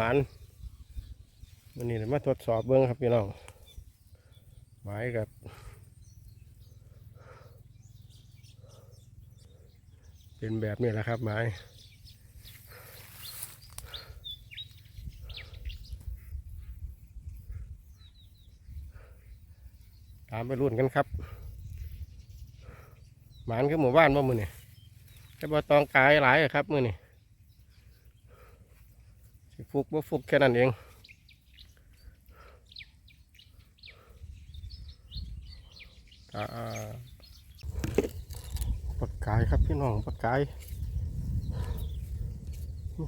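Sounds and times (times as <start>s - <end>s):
low wind rumble: 0.0s - 1.7s, 37.4s - 43.0s
birds chirping: 0.0s - 43.0s.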